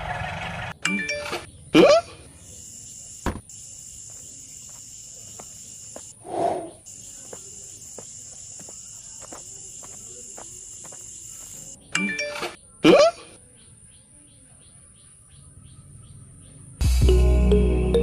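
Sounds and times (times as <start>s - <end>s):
high-pitched insect chorus: 2.2s - 11.9s.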